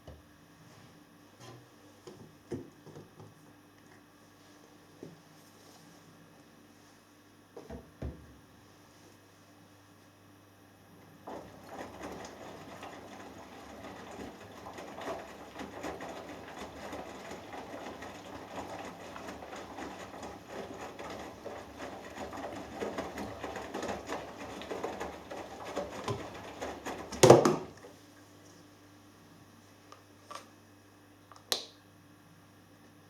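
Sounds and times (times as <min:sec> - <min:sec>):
wet laundry tumbling: 0:11.0 - 0:28.0
washing machine drum turning: 0:11.2 - 0:27.8.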